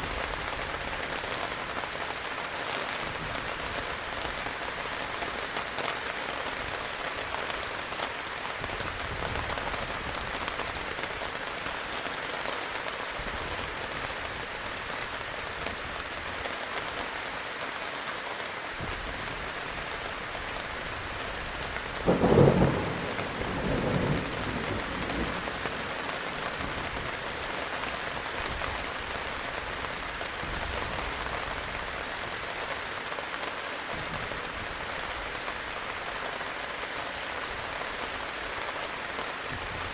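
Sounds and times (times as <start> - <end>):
heavy rain falling: 0.0 - 39.9
thunder rumble: 22.0 - 27.2
thunder clap: 22.1 - 27.1.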